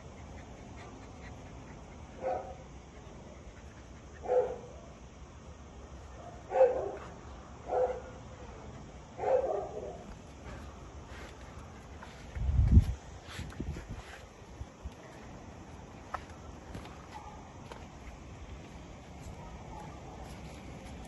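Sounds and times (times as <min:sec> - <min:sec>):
dog barking: 0:02.2 - 0:02.6, 0:04.2 - 0:04.7, 0:06.2 - 0:07.1, 0:07.7 - 0:08.2, 0:09.2 - 0:10.0.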